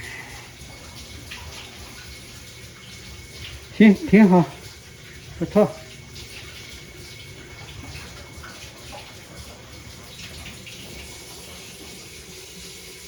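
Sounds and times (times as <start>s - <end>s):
washing machine filling with water: 0.0s - 13.0s.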